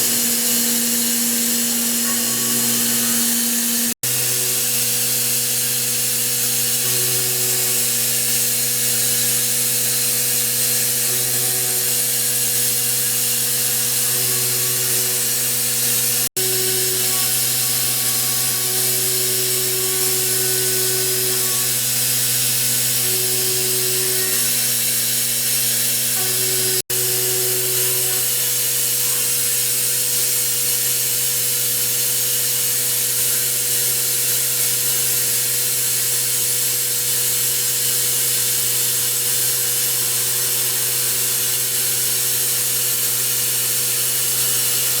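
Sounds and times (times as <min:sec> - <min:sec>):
held tones: 0:00.0 - 0:04.0
spindle hum: 0:00.0 - 0:05.4, 0:06.7 - 0:29.3
machine cutting hiss: 0:00.0 - 0:45.0.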